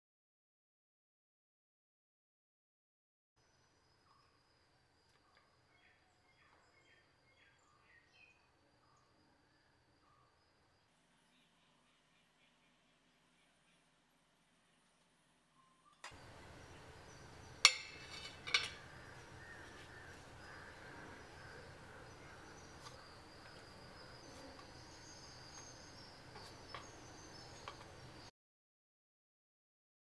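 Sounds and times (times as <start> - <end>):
metal plate clanking on countertop: 17.7 - 18.9.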